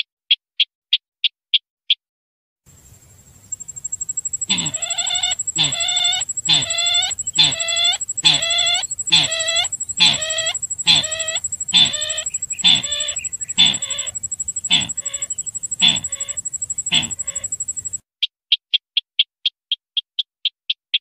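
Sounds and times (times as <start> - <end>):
high-pitched whine: 3.6 - 18.0
bird harsh falling call: 4.3 - 18.0.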